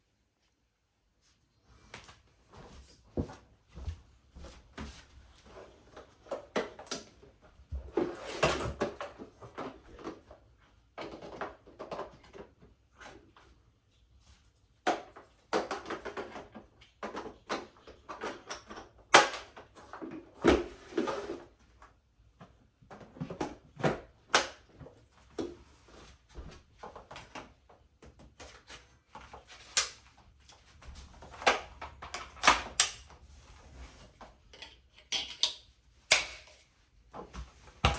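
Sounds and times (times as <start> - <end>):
plastic parts clicking and knocking: 8.7 - 12.7, 14.8 - 20.5, 34.5 - 36.7.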